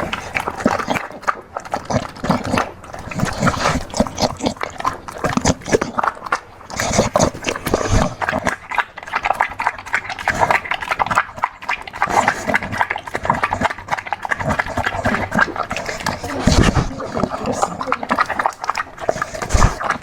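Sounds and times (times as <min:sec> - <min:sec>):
dog chewing and lapping: 0:00.0 - 0:20.0.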